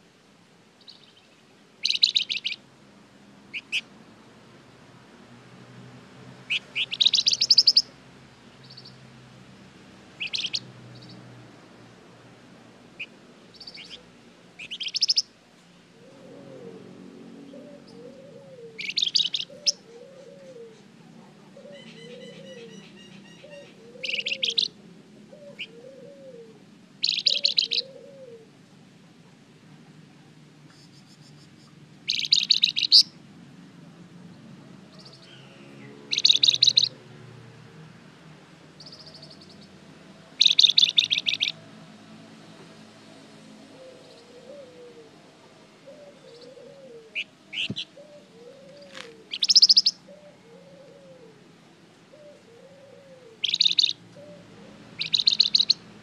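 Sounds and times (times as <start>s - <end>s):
songbird chattering trills: 0.8s - 2.6s, 3.5s - 3.9s, 6.5s - 7.9s, 10.2s - 11.2s, 13.0s - 14.0s, 14.6s - 15.3s, 18.8s - 20.8s, 21.7s - 24.7s, 27.0s - 28.0s, 30.8s - 33.1s, 35.0s - 37.0s, 40.4s - 41.6s, 47.2s - 50.1s, 53.4s - 54.0s, 55.0s - 55.8s.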